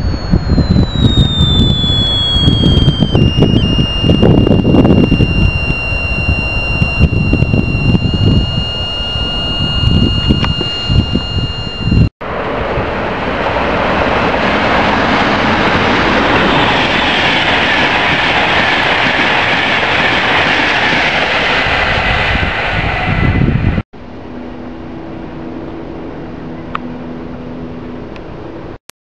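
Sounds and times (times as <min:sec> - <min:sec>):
steady hum with low tones: 0:00.0 - 0:12.1, 0:24.0 - 0:28.8.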